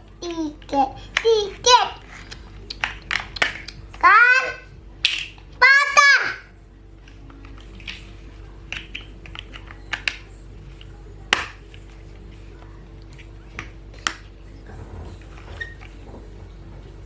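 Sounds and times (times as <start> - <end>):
steady low hum: 0.0 - 17.0
plastic blocks clicking and knocking: 7.0 - 10.3.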